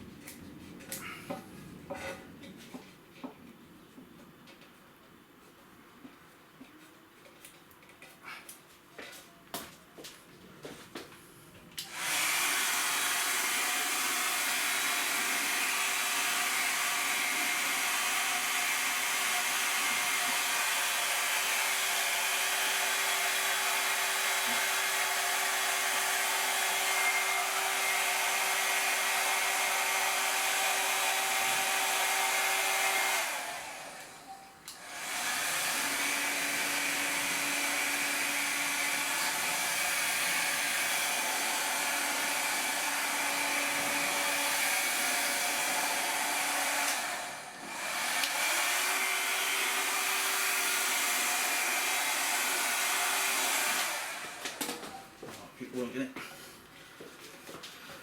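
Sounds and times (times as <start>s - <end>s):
hot-air blower running: 11.8s - 55.0s.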